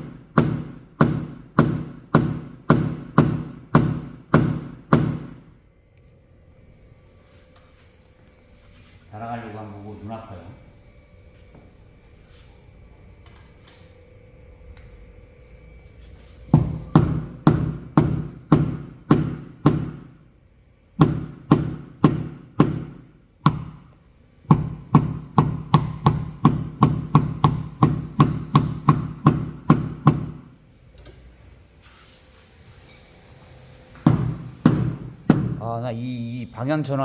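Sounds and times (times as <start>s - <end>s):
hammer tapping on metal hood: 0.3s - 5.4s, 16.5s - 20.1s, 21.0s - 23.8s, 24.5s - 30.4s.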